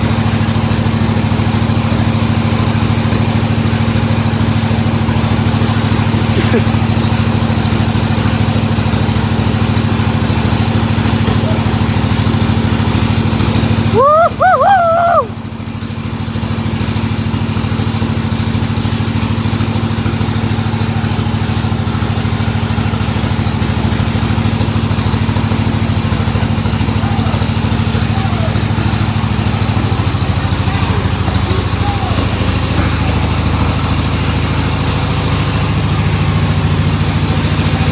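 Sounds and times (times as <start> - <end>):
wood saw engine running: 0.0 - 37.9
short wavering voice-like call: 14.0 - 15.3.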